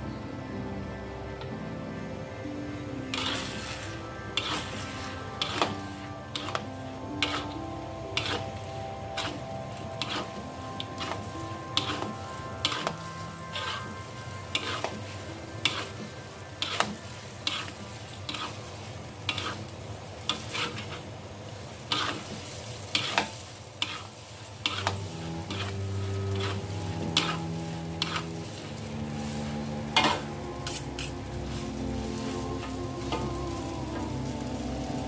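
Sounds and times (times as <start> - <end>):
food sizzling in a pan: 0.7 - 35.0
utensil scraping and knocking pan: 7.2 - 7.6.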